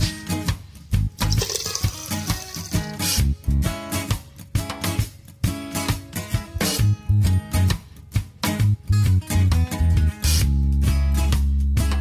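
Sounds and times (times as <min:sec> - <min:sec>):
guitar music with bass beat: 0:00.0 - 0:12.0.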